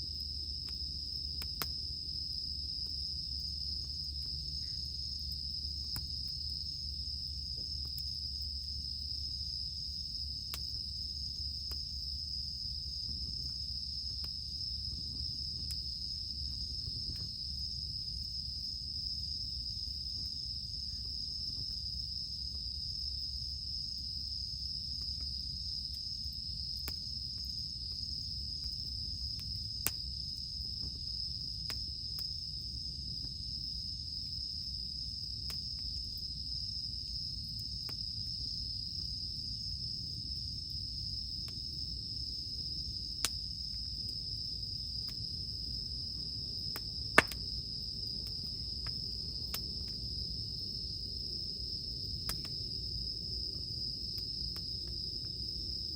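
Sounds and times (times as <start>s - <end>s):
campfire crackling and popping: 0.0s - 22.4s, 24.9s - 32.8s, 42.4s - 55.9s
cicadas droning: 0.0s - 55.9s.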